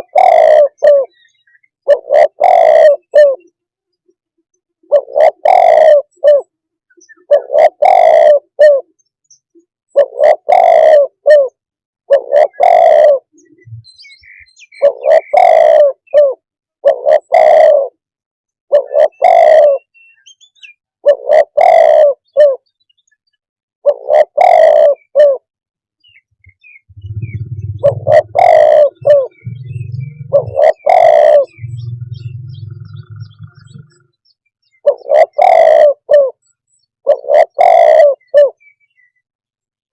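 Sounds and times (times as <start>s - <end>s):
dove cooing: 0.0s - 1.2s, 1.8s - 3.5s, 4.9s - 8.9s, 9.9s - 14.2s, 14.8s - 18.0s, 18.7s - 19.9s, 21.0s - 22.6s, 23.8s - 25.5s, 26.9s - 34.1s, 34.8s - 36.4s, 37.0s - 38.7s
low hum: 26.9s - 34.0s.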